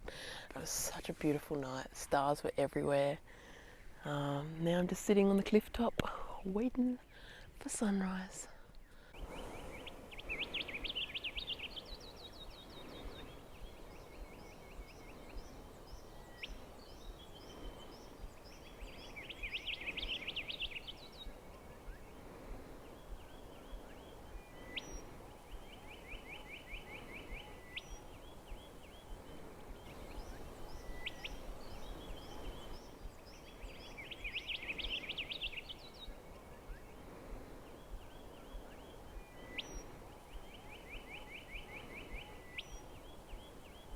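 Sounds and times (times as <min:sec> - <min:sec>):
birds trilling: 0:08.9 - 0:37.0.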